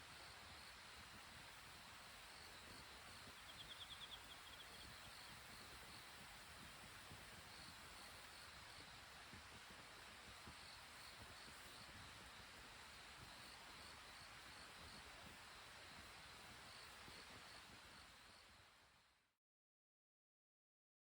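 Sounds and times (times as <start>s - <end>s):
background hiss: 0.0s - 19.2s.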